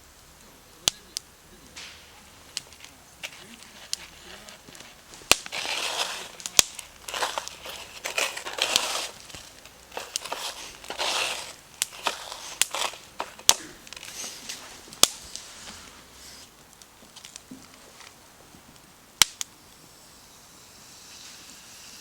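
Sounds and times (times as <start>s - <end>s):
wood fire popping: 0.2s - 20.3s
crinkling handling noise: 0.9s - 19.4s.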